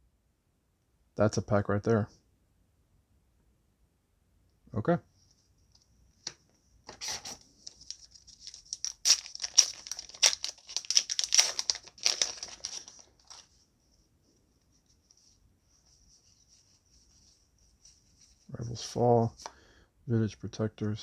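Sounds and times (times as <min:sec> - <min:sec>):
foil wrapper tearing and crinkling: 0:07.0 - 0:13.5.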